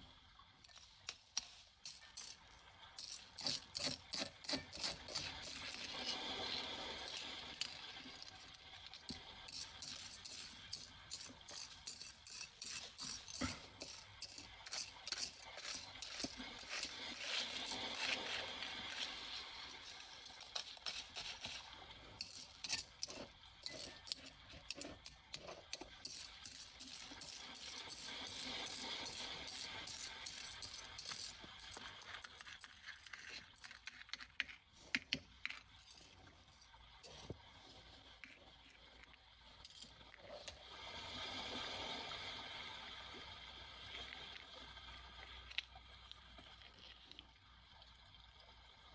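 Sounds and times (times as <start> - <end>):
small hard objects clicking: 0.7 - 36.1.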